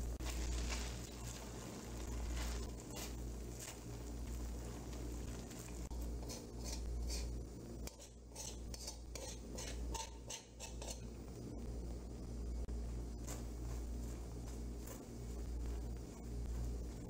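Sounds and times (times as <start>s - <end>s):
steady low hum: 0.0s - 17.0s
spoon scraping bottom of pan: 6.2s - 11.0s.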